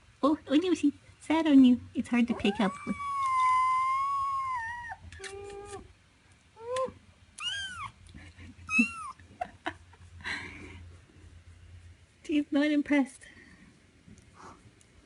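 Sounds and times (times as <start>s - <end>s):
kitten meowing: 2.4s - 5.8s, 7.4s - 8.0s, 8.7s - 9.2s.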